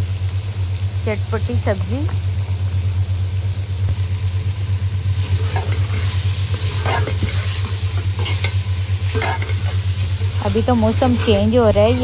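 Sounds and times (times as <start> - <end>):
food sizzling in a pot: 0.0 - 12.0
steady low hum: 0.0 - 12.0
steel ladle scraping a pot: 5.1 - 12.0.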